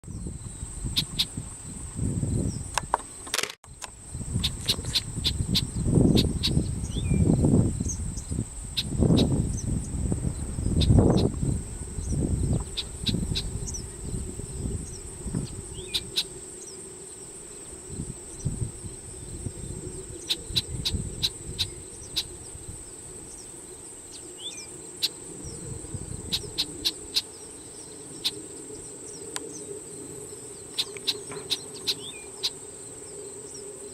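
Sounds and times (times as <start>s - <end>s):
wind rumble on microphone: 0.0s - 32.4s
insects droning: 0.1s - 33.9s.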